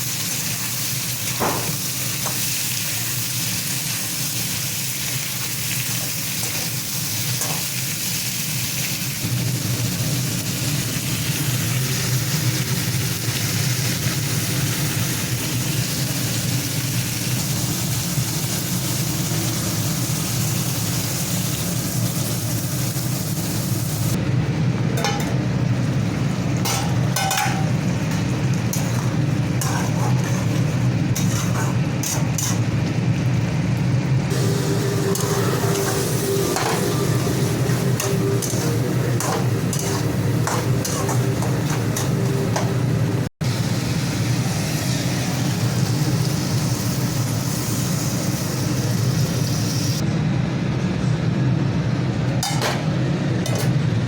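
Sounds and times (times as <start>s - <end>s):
food sizzling in hot oil: 0.0s - 24.2s, 34.2s - 50.0s
steady low hum: 9.2s - 54.0s
spatula scraping a pan: 28.7s - 32.6s.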